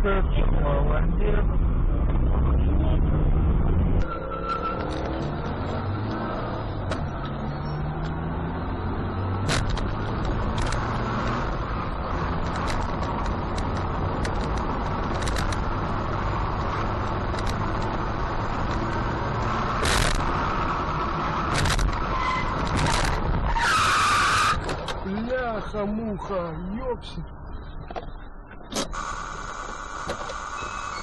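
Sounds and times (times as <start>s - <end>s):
car engine and road noise: 0.0s - 31.0s
harsh scraping or skidding: 4.0s - 25.8s.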